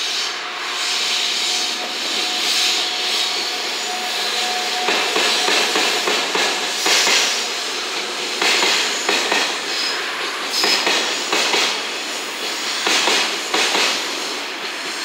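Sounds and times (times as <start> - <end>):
high wheel squeal: 0.0 - 8.0.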